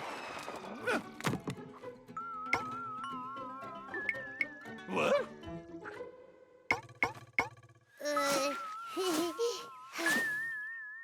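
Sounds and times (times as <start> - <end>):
cartoon music: 8.0 - 10.4.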